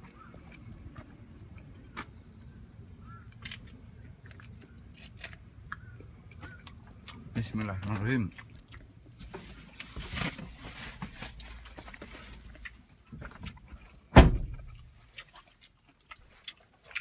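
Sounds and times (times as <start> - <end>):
handling and shuffling noises: 9.1 - 14.0
heavy loud thump: 14.2 - 14.7.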